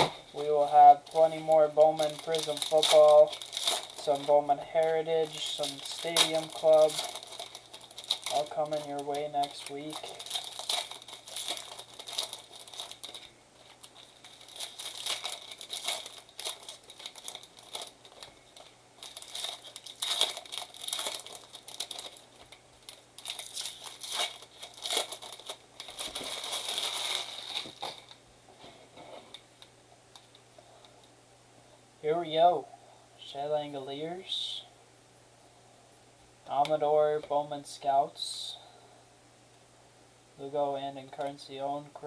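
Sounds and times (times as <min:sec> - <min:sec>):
foil wrappers crinkling and tearing: 0:00.0 - 0:29.4.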